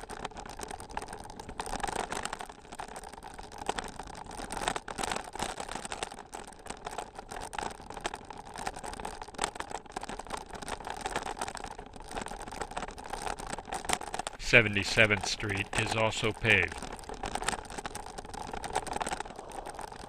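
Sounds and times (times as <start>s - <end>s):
bicycle rolling over gravel: 0.0s - 14.4s, 16.8s - 20.0s.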